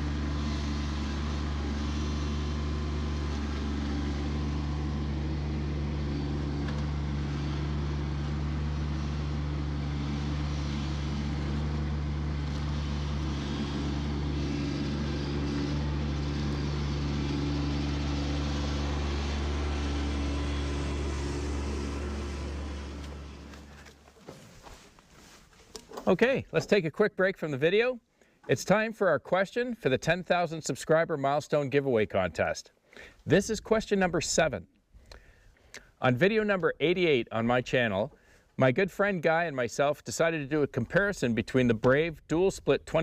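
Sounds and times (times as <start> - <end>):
diesel tractor engine running: 0.0 - 24.9.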